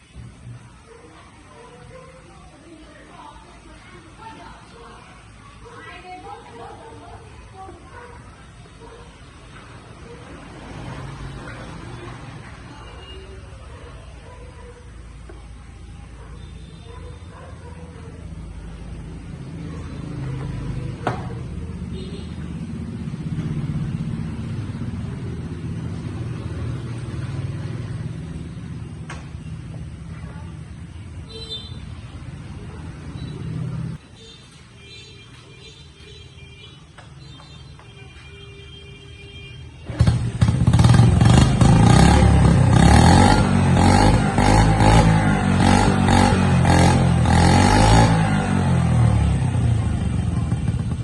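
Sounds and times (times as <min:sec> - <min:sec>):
motorcycle engine running: 0:18.7 - 0:34.0, 0:39.8 - 0:51.0.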